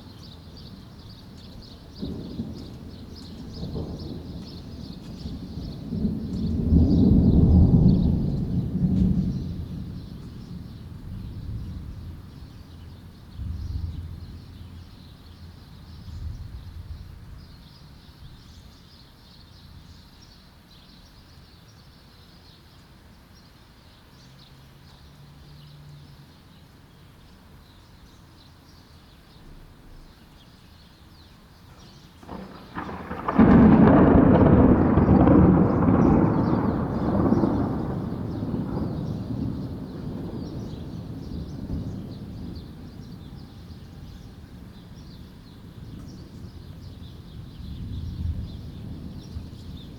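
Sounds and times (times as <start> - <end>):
thunder rumbling: 0.3 - 14.8, 32.2 - 49.9
loud thunderclap: 1.9 - 12.2, 32.2 - 43.9, 45.4 - 49.9.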